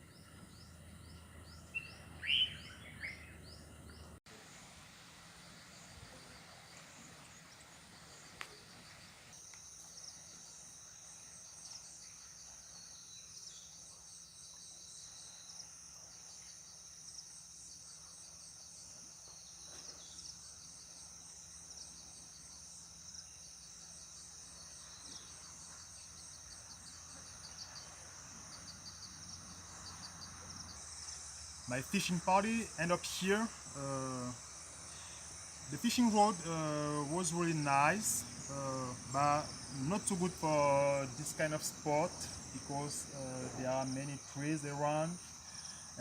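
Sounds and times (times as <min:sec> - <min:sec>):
insects buzzing: 0:00.0 - 0:46.0
rapid pulsing insect chirps: 0:04.4 - 0:46.0.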